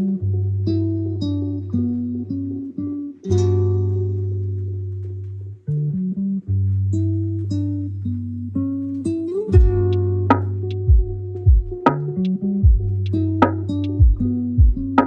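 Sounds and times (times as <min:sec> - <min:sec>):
plucked guitar notes: 0:00.0 - 0:15.0
sustained bass line: 0:09.5 - 0:15.0.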